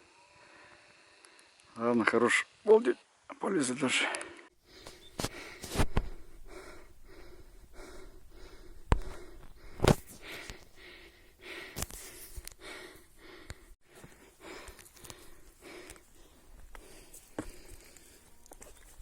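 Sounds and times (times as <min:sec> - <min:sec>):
person breathing hard: 0:04.6 - 0:18.3.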